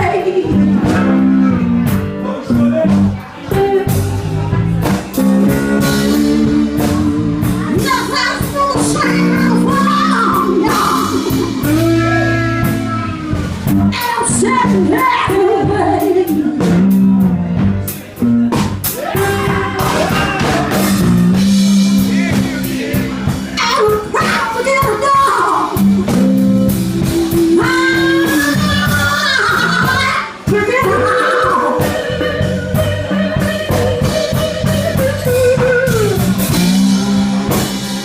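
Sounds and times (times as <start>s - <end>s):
blues band playing: 0.0s - 38.0s
electric guitars bending notes: 0.0s - 38.0s
drum and cymbal hits: 2.9s - 15.0s, 15.7s - 30.6s, 31.8s - 38.0s
person singing: 5.2s - 17.3s, 25.6s - 38.0s.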